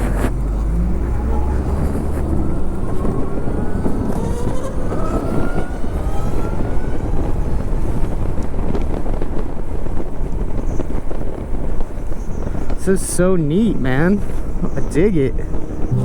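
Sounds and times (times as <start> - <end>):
wind rush on microphone: 0.0 - 16.0
electric motorcycle motor whine: 1.7 - 8.1.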